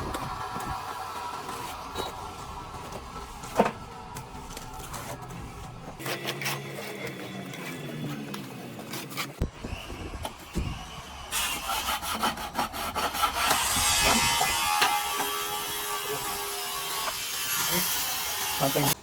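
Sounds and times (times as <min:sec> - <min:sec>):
hand tool scraping plaster wall: 0:11.3 - 0:18.9.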